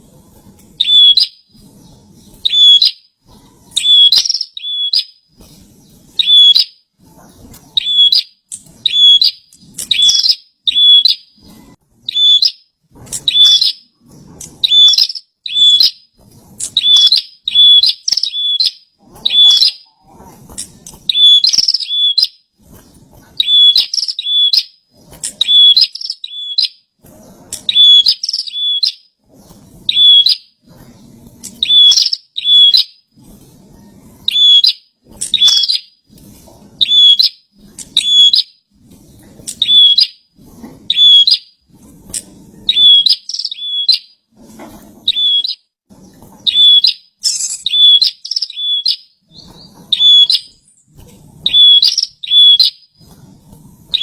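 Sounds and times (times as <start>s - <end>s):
bird chirping sharp high notes: 7.8s - 11.3s, 46.5s - 50.6s.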